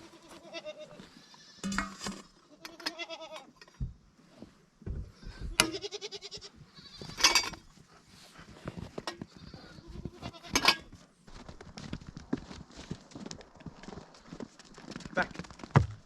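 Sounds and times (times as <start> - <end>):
goat bleating: 0.0 - 1.6, 2.4 - 3.5, 5.6 - 7.2, 9.4 - 10.6.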